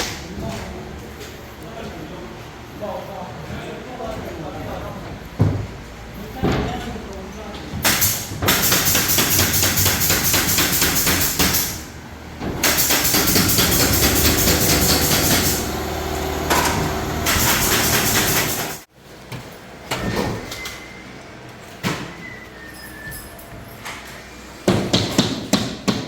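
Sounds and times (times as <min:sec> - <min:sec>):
power tool chattering: 0:07.8 - 0:11.9, 0:12.6 - 0:18.9.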